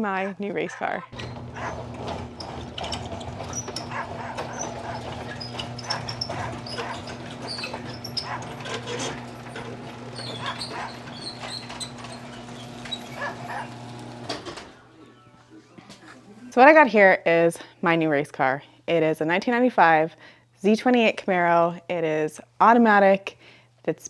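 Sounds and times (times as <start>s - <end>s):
garage door opener hum: 1.1s - 14.9s
dogs whimpering and yipping: 3.5s - 9.1s, 10.2s - 13.8s.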